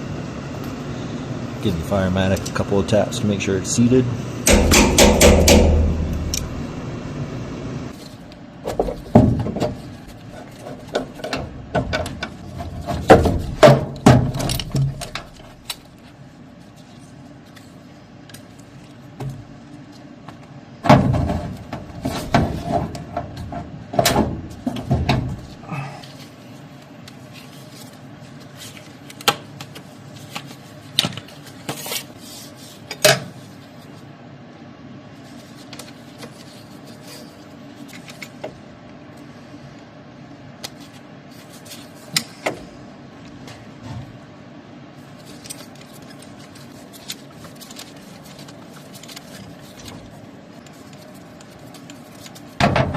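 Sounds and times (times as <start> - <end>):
metal tools knocking on pipe: 4.5 - 6.2.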